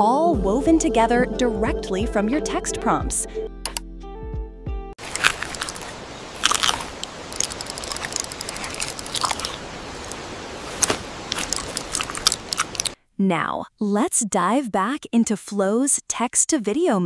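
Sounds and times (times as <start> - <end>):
background hiss: 5.0 - 13.0
crunching and chewing a cracker: 5.0 - 13.0.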